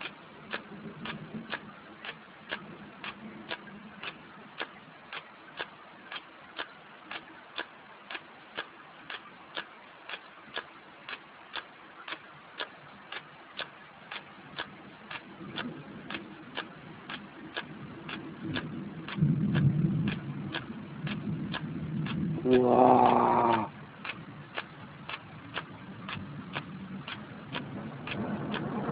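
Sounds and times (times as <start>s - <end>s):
mechanical ticking: 0.0s - 28.9s
low rumble: 15.0s - 28.9s.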